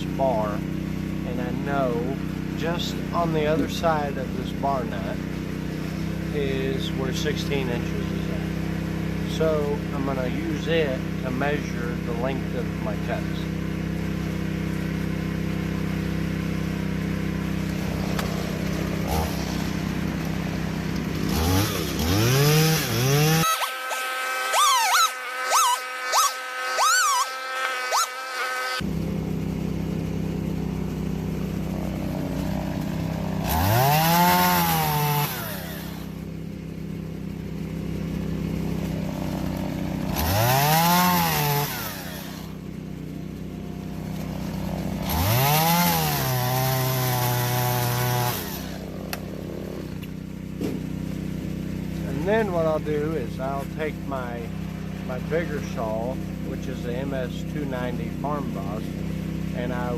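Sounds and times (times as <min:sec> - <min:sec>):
chainsaw idling and revving: 0:00.0 - 0:59.9.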